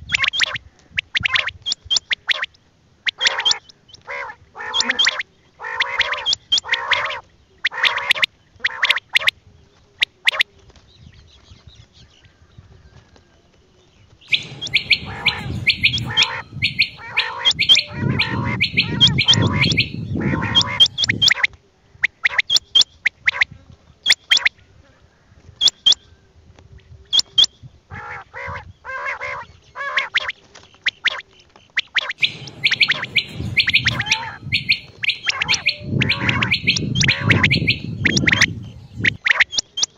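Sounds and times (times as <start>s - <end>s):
quail calling: 3.1s - 9.3s, 14.3s - 23.4s, 27.9s - 31.2s, 31.8s - 39.9s
low rumbling noise: 14.3s - 21.2s, 32.2s - 39.2s.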